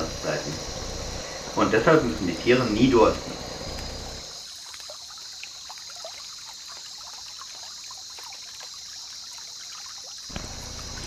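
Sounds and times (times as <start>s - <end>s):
steady high hiss: 0.0s - 4.6s
water trickling and dripping: 0.0s - 11.0s.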